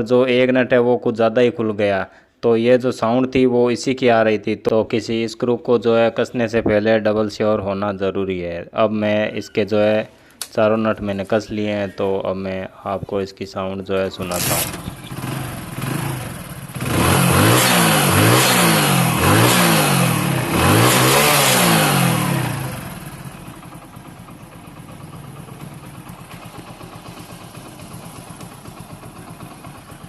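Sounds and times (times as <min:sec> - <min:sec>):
motorcycle engine revving and idling: 0:14.2 - 0:30.0.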